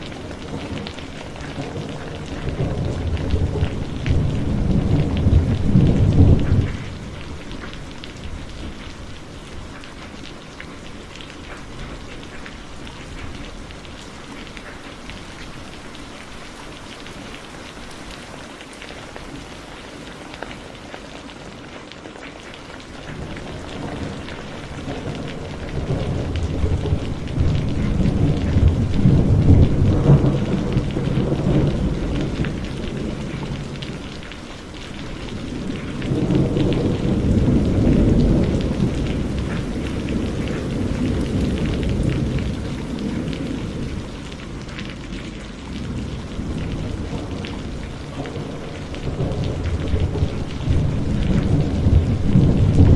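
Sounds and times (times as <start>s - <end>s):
rolling thunder: 0.0s - 9.3s, 23.0s - 52.9s
heavy rain: 0.0s - 52.9s.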